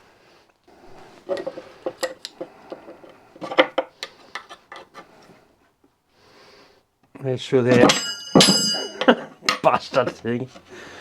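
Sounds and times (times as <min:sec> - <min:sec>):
metal clinks and clicks: 0:07.8 - 0:09.2.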